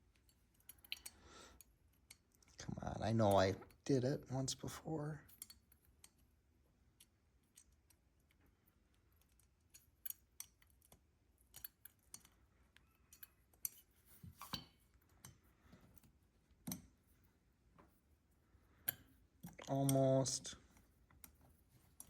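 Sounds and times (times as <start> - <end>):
small metal parts clicking: 0.0 - 2.6, 5.3 - 6.3, 6.9 - 15.4.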